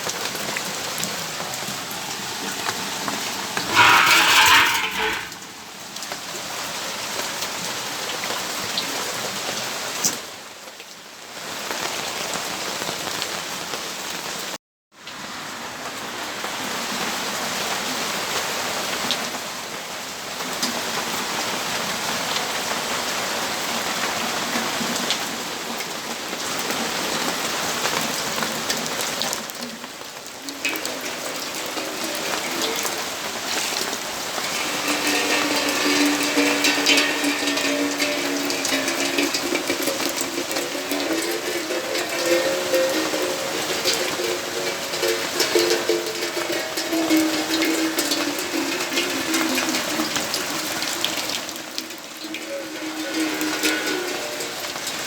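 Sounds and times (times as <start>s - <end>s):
steady rainfall hiss: 29.8s - 55.0s.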